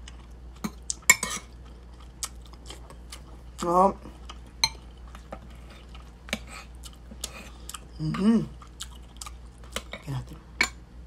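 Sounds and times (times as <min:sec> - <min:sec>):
chewing and mouth noises: 0:00.0 - 0:10.4
person humming: 0:08.0 - 0:08.5.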